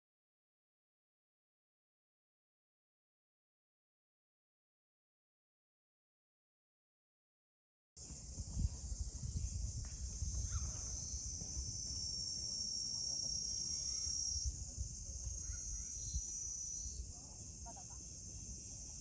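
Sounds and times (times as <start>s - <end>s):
insects chorus: 8.0s - 19.0s.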